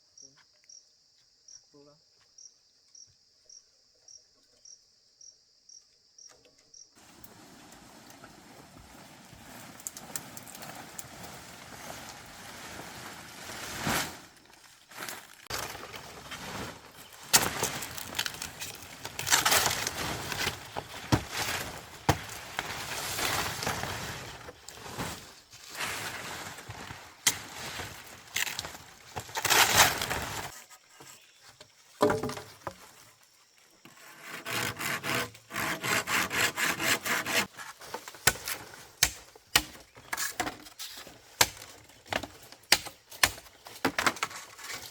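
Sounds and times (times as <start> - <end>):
bamboo knocking and cracking: 17.1 - 22.9, 27.2 - 30.6, 31.9 - 32.9, 37.8 - 44.9.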